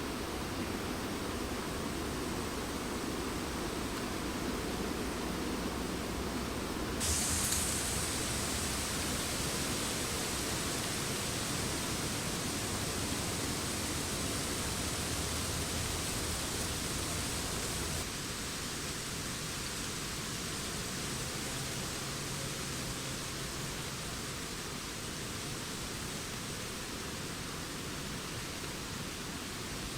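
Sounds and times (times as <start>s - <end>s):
wind rustling tree leaves: 0.0s - 29.9s.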